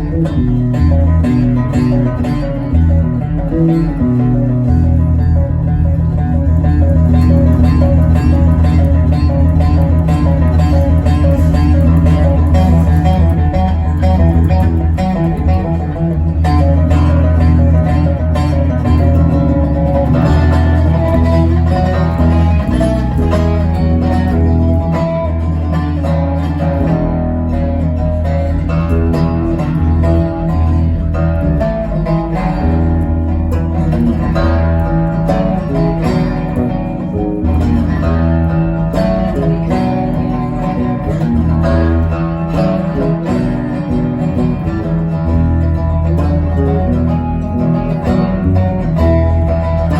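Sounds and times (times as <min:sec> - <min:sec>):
guitar: 0:00.0 - 0:49.9
live band playing instrumental: 0:02.9 - 0:27.0.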